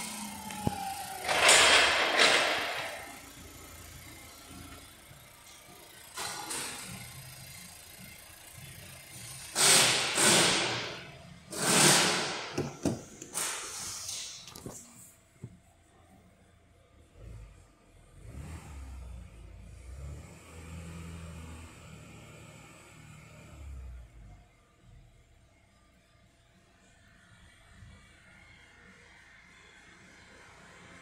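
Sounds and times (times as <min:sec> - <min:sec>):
car engine idling: 0:00.0 - 0:11.5.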